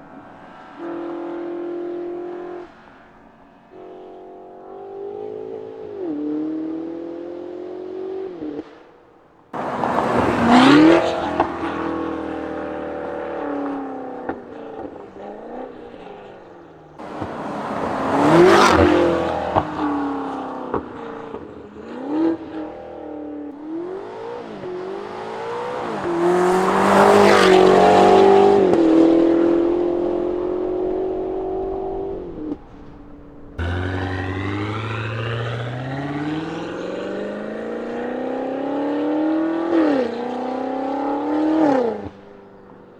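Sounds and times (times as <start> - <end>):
car engine accelerating past: 9.6 - 42.6.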